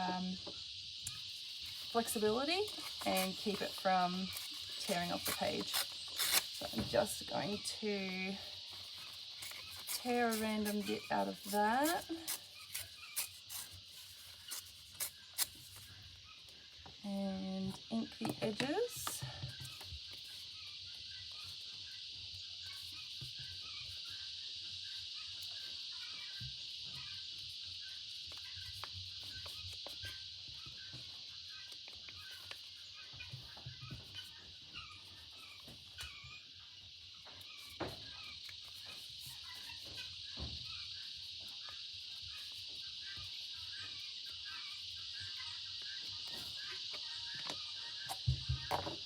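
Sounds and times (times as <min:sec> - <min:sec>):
high insect chirring: 0:00.0 - 0:49.0
steady high-pitched hiss: 0:00.0 - 0:49.0
paper taps and scratches: 0:08.7 - 0:15.9.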